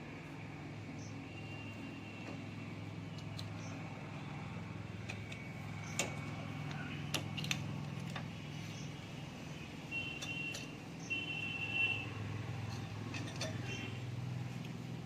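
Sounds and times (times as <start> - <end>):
metal tools clicking: 12.6 - 13.8.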